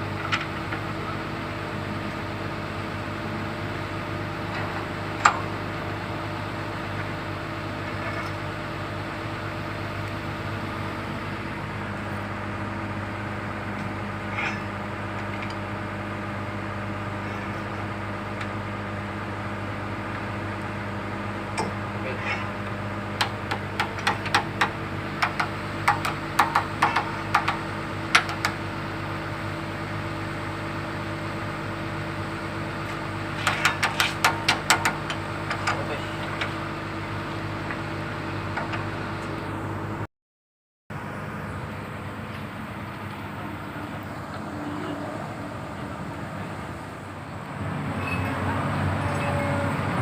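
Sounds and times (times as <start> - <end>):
excavator diesel engine running: 0.0 - 40.1, 40.9 - 50.0.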